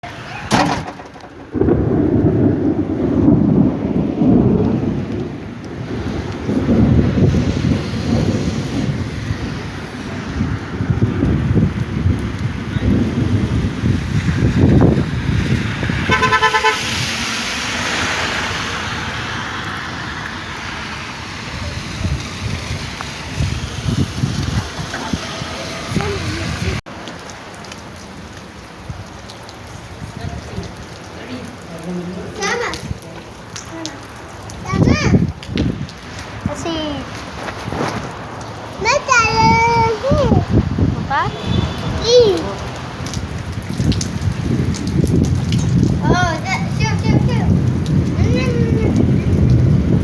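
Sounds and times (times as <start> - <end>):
rain falling: 0.0 - 50.0
loud low rumble: 0.9 - 5.2
car horn toots: 16.1 - 16.9.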